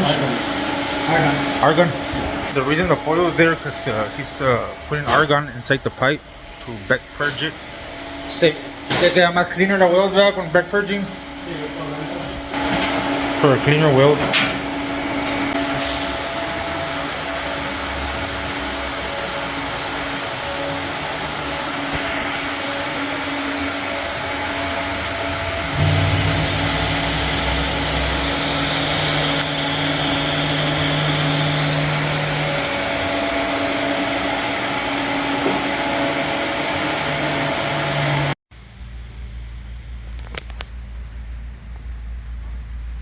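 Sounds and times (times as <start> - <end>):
machine whirring and hissing: 11.3 - 38.4
low hum: 24.0 - 32.7
low rumble: 25.4 - 30.2.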